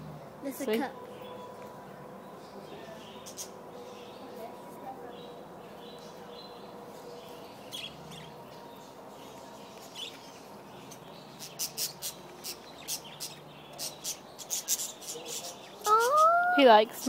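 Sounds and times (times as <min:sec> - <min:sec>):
parrots chirping: 0:15.8 - 0:16.8.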